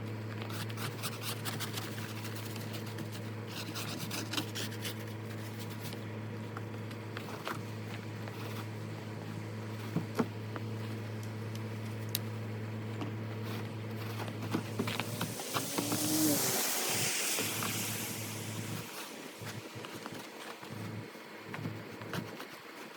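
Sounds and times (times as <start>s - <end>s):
steady low hum: 5.3s - 22.4s.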